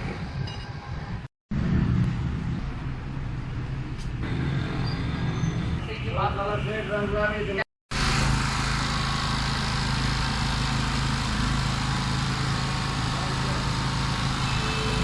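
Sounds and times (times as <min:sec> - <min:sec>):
generator engine running: 0:07.9 - 0:15.0.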